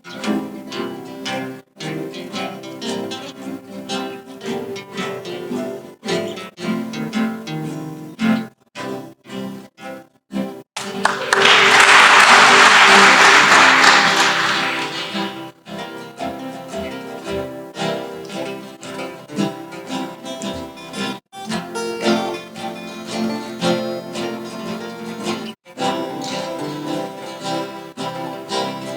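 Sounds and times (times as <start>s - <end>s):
acoustic guitars playing blues: 0.0s - 28.9s
audience applause: 10.8s - 15.5s.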